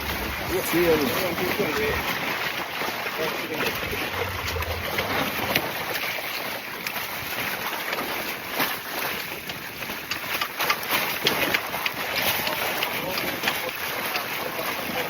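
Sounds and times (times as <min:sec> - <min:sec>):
water rushing: 0:00.0 - 0:15.0
wind rushing: 0:03.7 - 0:06.0.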